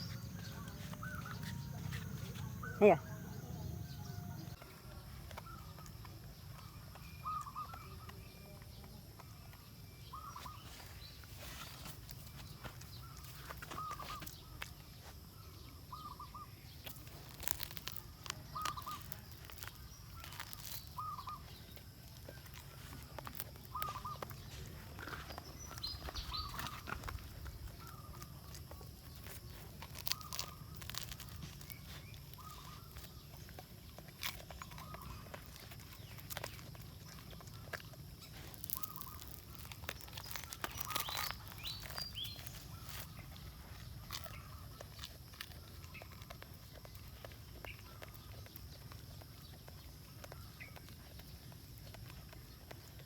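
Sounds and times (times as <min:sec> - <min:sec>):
bird calling: 0:00.0 - 0:04.6, 0:07.0 - 0:08.2, 0:10.0 - 0:14.6, 0:15.9 - 0:33.5.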